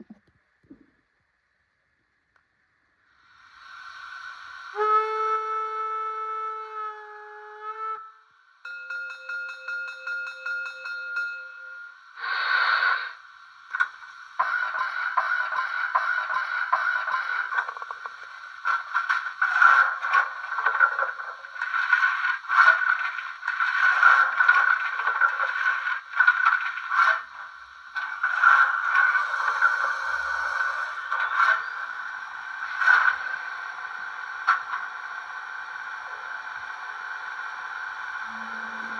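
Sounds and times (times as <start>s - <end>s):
steam hiss: 3.1s - 6.6s, 11.9s - 34.4s
steam whistle: 4.4s - 8.3s, 38.2s - 38.9s
model train wheels rattling on rails: 13.7s - 30.4s.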